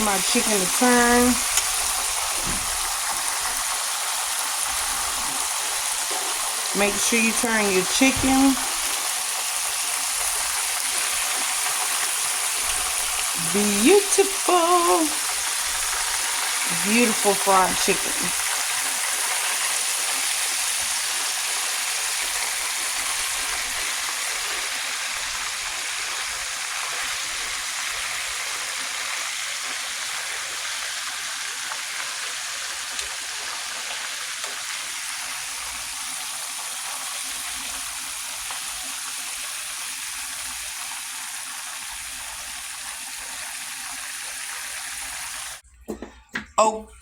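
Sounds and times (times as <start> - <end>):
chicken frying in hot oil: 0.0 - 45.6.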